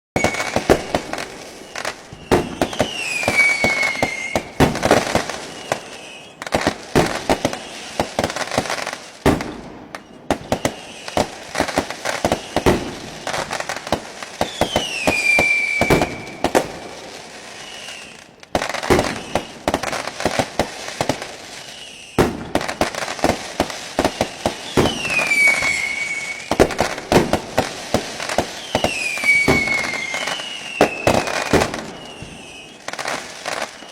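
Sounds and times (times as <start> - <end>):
high falling whistle: 0.2 - 6.4, 24.3 - 26.6, 28.6 - 33.9
fireworks bangs and crackling: 0.2 - 33.9.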